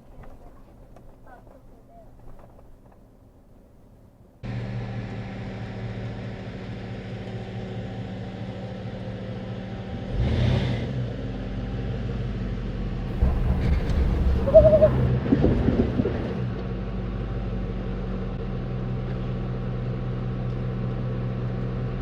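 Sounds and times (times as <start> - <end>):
rumbling over rough ground: 13.1 - 16.8.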